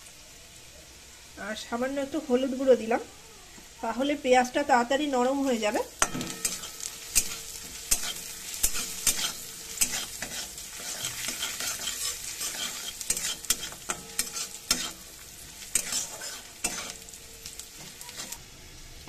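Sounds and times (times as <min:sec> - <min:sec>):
onions sizzling in oil: 0:00.0 - 0:19.0
metal spatula scraping pan: 0:06.0 - 0:18.4.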